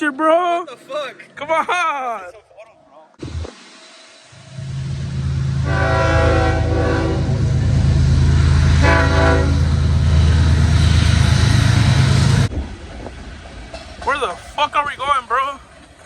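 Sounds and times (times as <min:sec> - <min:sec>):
locomotive low rumble: 0:04.4 - 0:16.0
train horn blasts: 0:04.6 - 0:10.3.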